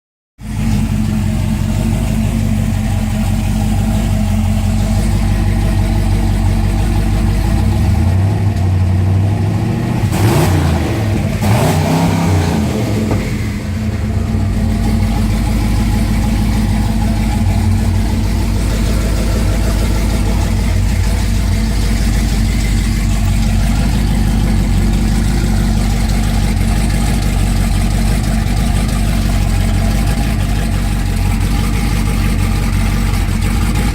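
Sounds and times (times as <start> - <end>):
truck engine idling and revving: 0.4 - 33.9.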